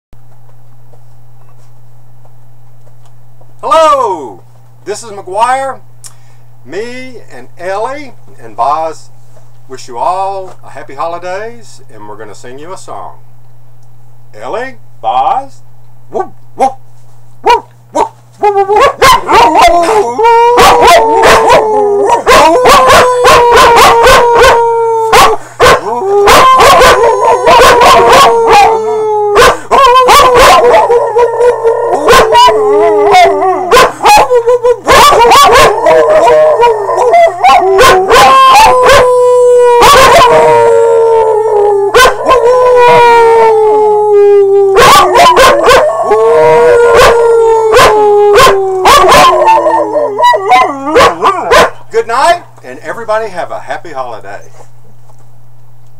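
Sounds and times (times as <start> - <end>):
dogs yipping and barking: 17.4 - 28.7, 29.4 - 31.3, 33.1 - 39.1, 42.0 - 43.0, 44.8 - 46.2, 46.8 - 51.8
dogs howling: 18.4 - 51.8.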